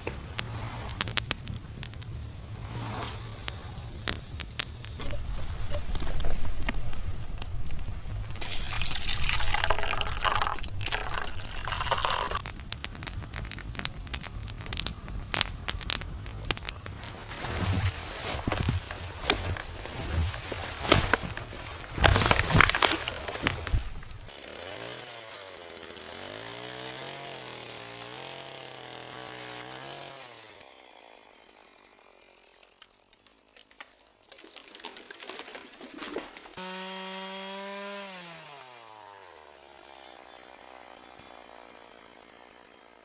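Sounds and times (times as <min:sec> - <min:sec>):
small engine revving: 0:00.0 - 0:09.8, 0:11.4 - 0:32.7, 0:36.6 - 0:43.0
loud crunching with knocks: 0:00.0 - 0:25.7.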